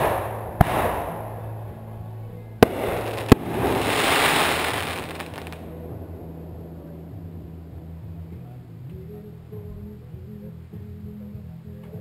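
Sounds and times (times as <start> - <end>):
firework bangs: 0.0 - 1.5, 2.6 - 5.6
firework crackle: 2.6 - 5.6.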